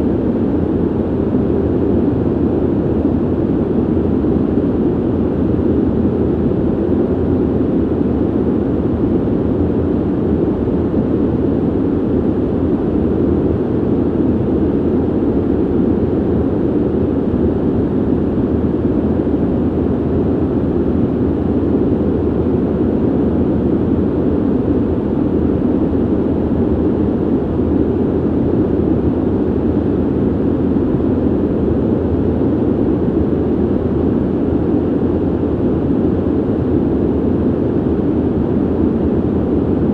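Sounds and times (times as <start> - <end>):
ventilation air rush: 0.0 - 39.9.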